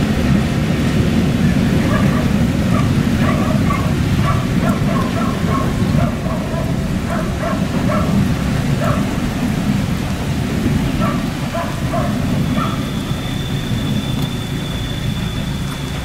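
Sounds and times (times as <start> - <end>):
train wheels rumbling on track: 0.0 - 16.0
wheel squeaks: 1.8 - 8.2, 10.6 - 16.0.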